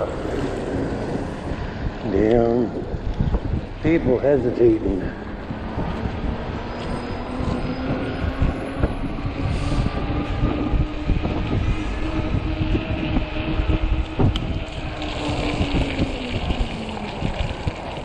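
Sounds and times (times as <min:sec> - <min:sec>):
wind buffeting microphone: 0:00.0 - 0:18.0
electric motor whine: 0:05.3 - 0:18.0.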